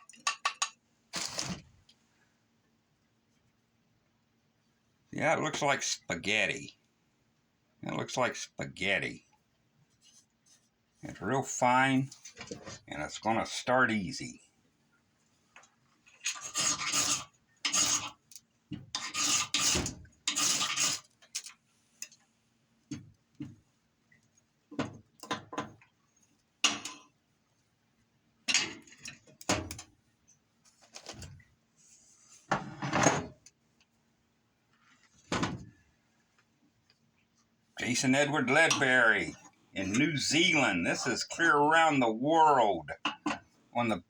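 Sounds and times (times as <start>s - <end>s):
metal blade scraping: 16.2s - 18.2s, 19.0s - 21.1s.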